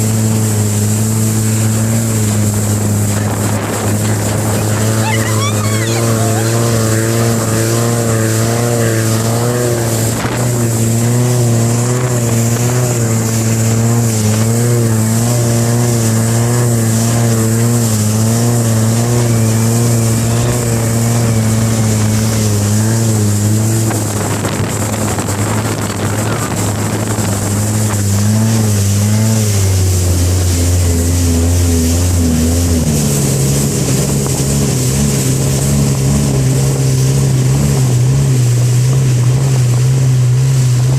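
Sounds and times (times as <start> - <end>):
boat engine droning: 0.0 - 40.9
rushing water: 0.0 - 40.9.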